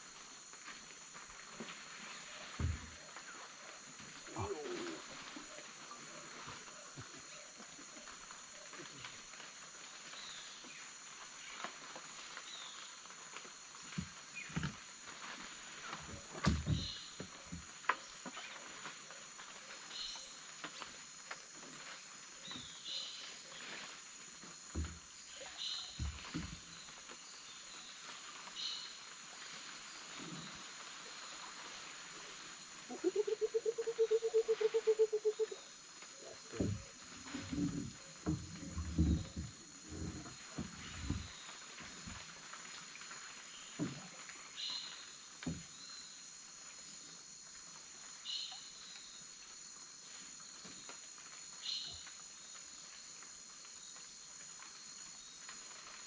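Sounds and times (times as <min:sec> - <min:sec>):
rapid pulsing call: 0:32.9 - 0:35.6.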